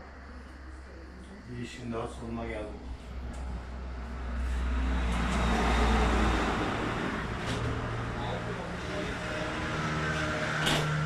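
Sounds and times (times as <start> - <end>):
motor vehicle running: 2.6 - 11.0.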